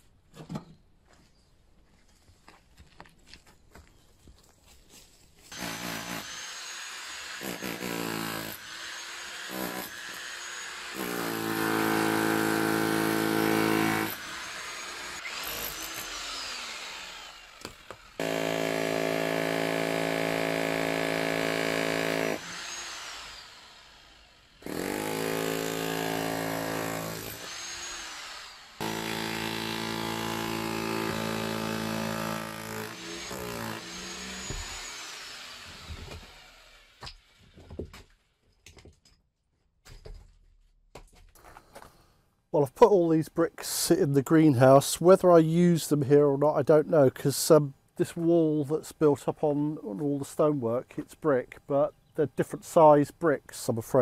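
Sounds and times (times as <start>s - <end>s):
power tool motor whining: 5.5s - 37.6s.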